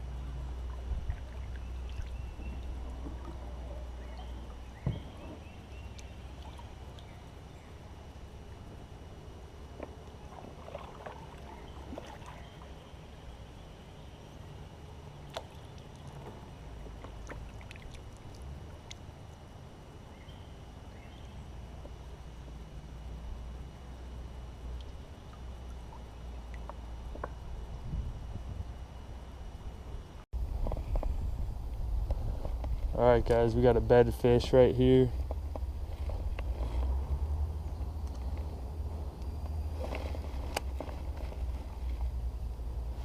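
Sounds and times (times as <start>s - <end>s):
water lapping against hull: 0.0s - 8.9s, 9.7s - 13.4s, 15.2s - 19.5s, 34.2s - 43.0s
low rumble: 0.0s - 12.0s, 22.1s - 43.0s.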